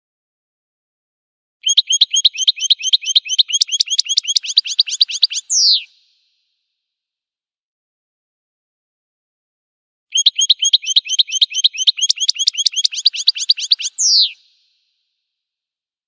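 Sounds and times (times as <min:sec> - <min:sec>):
goldfinch chirping song: 0:01.6 - 0:05.9, 0:10.1 - 0:14.4.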